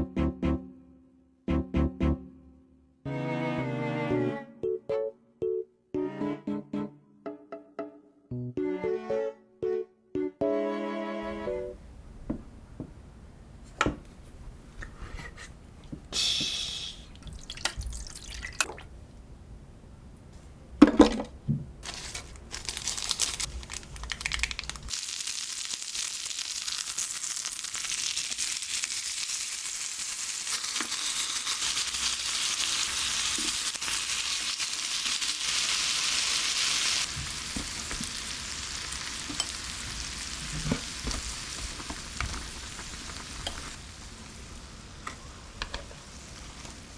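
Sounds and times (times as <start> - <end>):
meat sizzling in a frying pan: 24.2 - 45.0.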